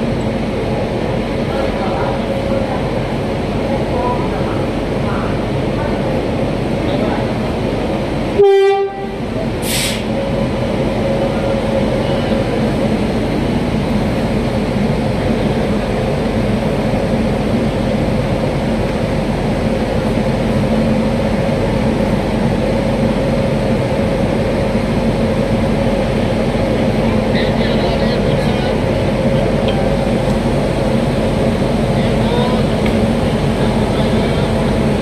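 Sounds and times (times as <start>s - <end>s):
train rumbling with low hum: 0.0s - 35.0s
train horn blast: 8.4s - 9.2s
brief hiss: 9.6s - 10.1s.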